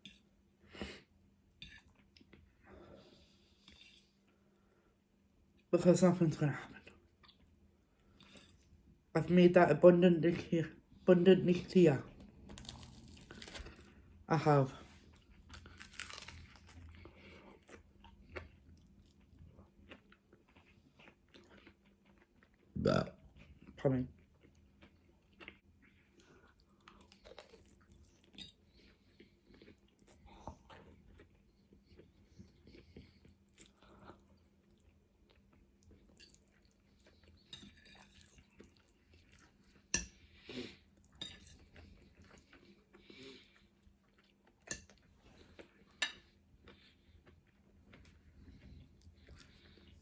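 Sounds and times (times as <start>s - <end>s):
person chewing food: 6.8s - 9.0s, 12.1s - 14.2s, 14.8s - 50.0s.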